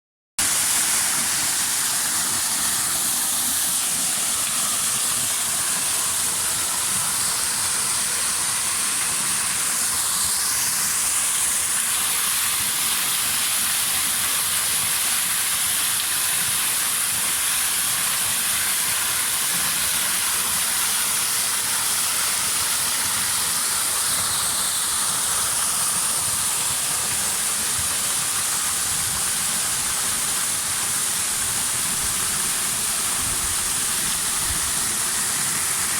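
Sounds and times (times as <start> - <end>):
waterfall rushing: 15.2 - 35.9.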